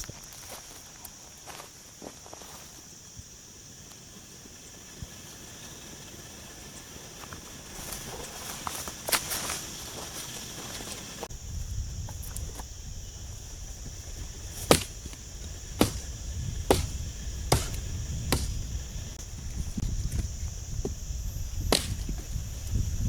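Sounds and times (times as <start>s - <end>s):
sharp knocks: 14.6s - 15.2s, 15.8s - 16.1s, 16.7s - 18.6s.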